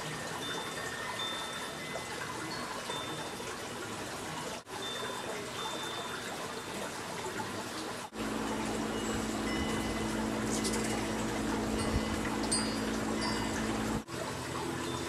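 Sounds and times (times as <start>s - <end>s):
high ringing tones: 0.4s - 3.6s, 4.7s - 6.9s, 8.2s - 14.1s
steady rushing hiss: 8.1s - 14.1s
low steady hum: 8.1s - 15.0s.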